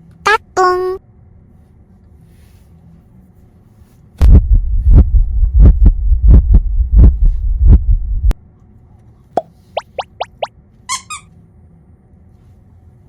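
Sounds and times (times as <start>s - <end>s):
heartbeat thuds: 4.2s - 8.4s
low rumble: 4.2s - 8.4s.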